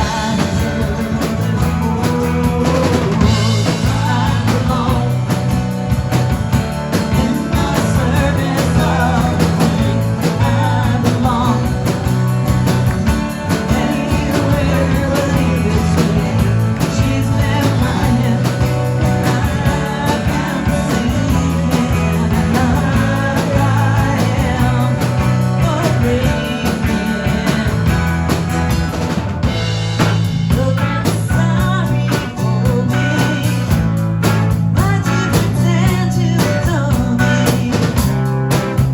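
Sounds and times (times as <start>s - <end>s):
person singing: 0.0s - 5.6s, 6.9s - 12.2s, 13.5s - 28.3s, 30.5s - 33.9s, 34.7s - 38.4s
drum kit: 0.0s - 38.9s
electric guitar: 0.0s - 38.9s.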